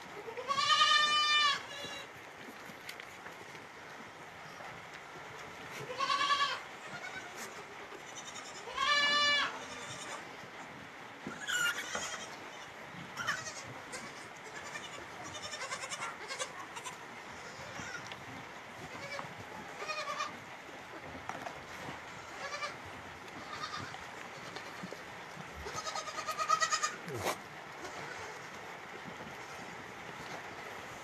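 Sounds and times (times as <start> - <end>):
goat kids bleating: 0.2 - 2.1, 5.7 - 10.3, 11.2 - 18.2, 18.8 - 20.4, 22.1 - 25.0, 25.6 - 28.6.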